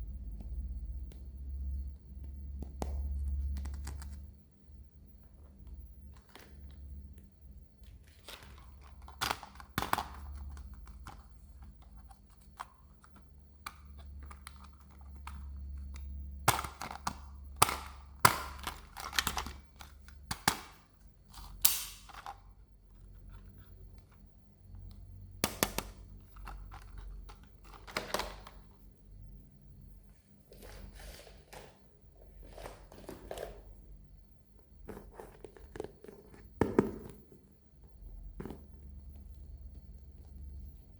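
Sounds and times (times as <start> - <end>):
faint low hum: 0.0 - 40.9
plastic toys clicking and tapping: 8.5 - 20.9
packaging rustling: 30.5 - 33.8.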